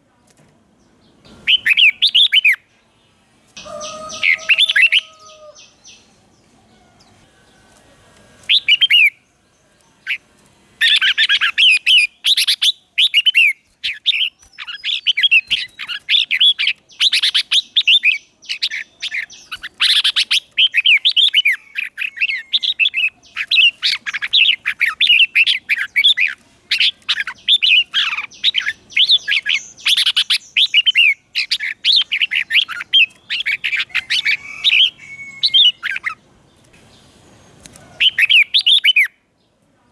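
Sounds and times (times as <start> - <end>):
bulbuls chirping: 1.0 - 2.7, 3.6 - 39.3.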